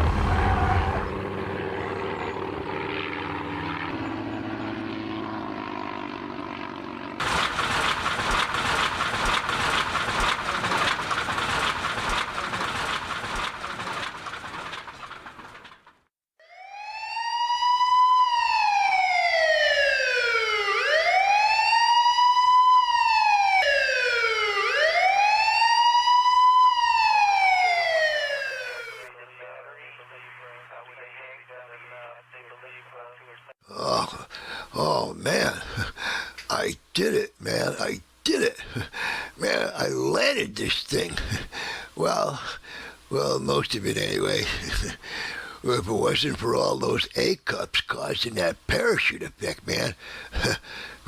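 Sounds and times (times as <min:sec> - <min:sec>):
police siren wailing: 0:00.0 - 0:04.4, 0:16.4 - 0:29.1
small plane engine droning: 0:00.0 - 0:15.6
loud crash with clattering: 0:07.2 - 0:16.0.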